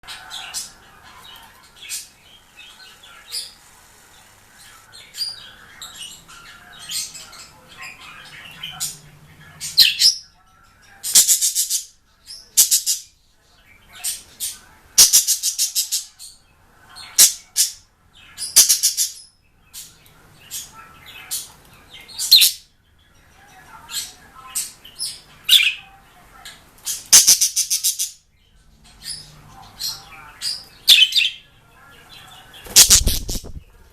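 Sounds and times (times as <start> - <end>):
bird chirping and trilling: 17.0 - 22.7, 26.9 - 31.5, 32.1 - 33.7.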